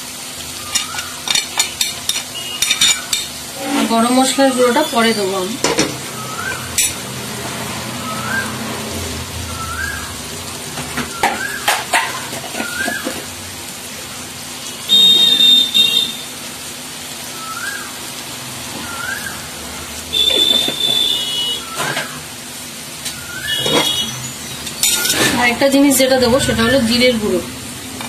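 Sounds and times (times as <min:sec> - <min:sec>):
masala sizzling in oil: 0:00.0 - 0:28.0
bird calling: 0:00.6 - 0:01.3, 0:06.1 - 0:06.8, 0:11.0 - 0:13.2.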